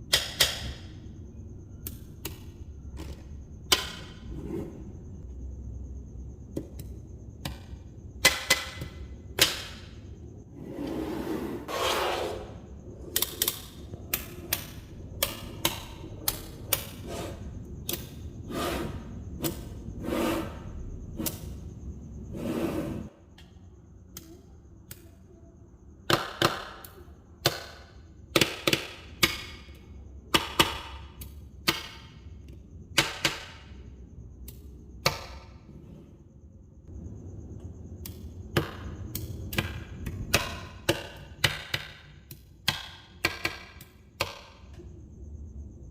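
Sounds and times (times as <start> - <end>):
balls sliding and rattling: 4.2 - 5.1, 10.5 - 13.1, 18.3 - 20.7.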